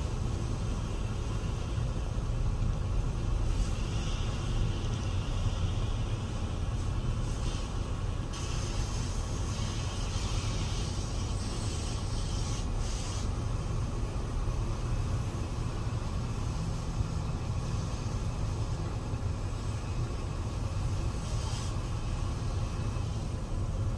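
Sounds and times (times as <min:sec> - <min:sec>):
rushing hiss: 0:03.4 - 0:13.7, 0:15.8 - 0:23.5.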